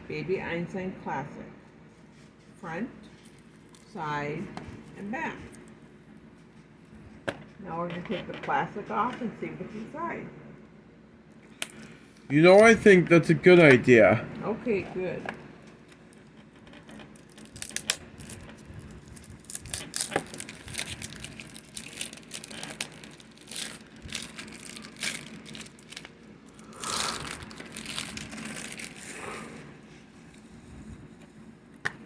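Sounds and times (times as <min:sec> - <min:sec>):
plastic shrink-wrap tearing and crinkling: 0:16.0 - 0:30.4.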